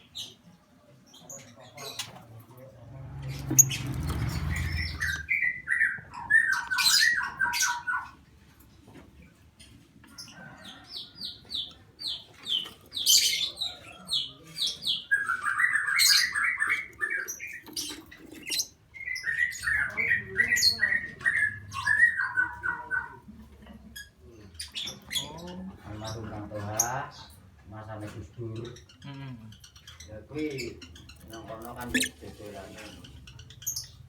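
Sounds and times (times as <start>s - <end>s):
lovebirds chirping and squawking: 1.1s - 8.4s, 9.6s - 23.3s, 23.9s - 27.5s, 28.4s - 34.0s
low rumble: 2.7s - 5.3s.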